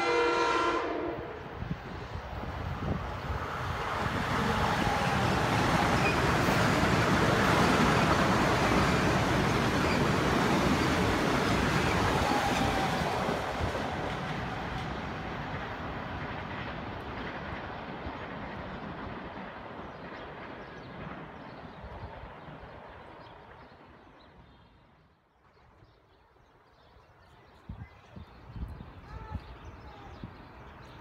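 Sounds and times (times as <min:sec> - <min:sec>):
train wheels rumbling on rails: 0:00.0 - 0:24.4.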